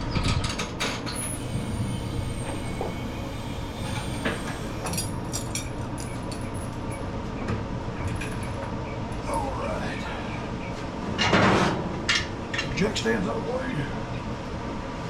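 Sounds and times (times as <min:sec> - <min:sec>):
shop fan droning: 0:00.0 - 0:15.0.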